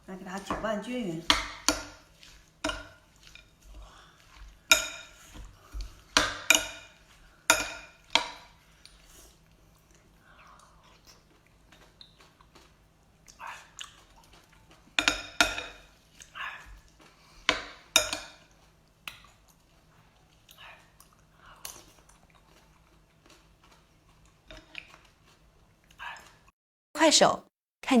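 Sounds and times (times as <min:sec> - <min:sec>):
utensils clinking on a dish: 0:04.7 - 0:05.2, 0:15.0 - 0:15.9.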